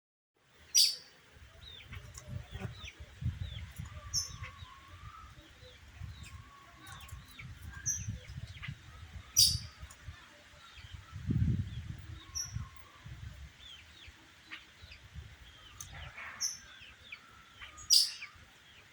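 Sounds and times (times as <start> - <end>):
songbirds chirping: 0.4 - 18.9
sharp high bird calls: 17.6 - 18.4.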